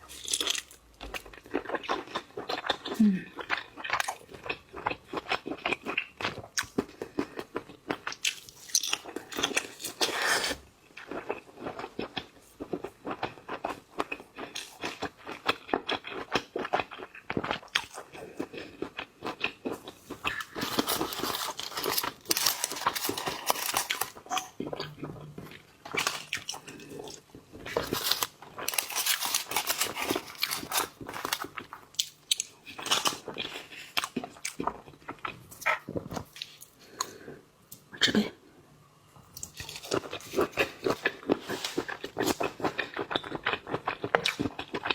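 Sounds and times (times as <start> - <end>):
person chewing and crunching: 0.1 - 37.9, 39.4 - 44.9.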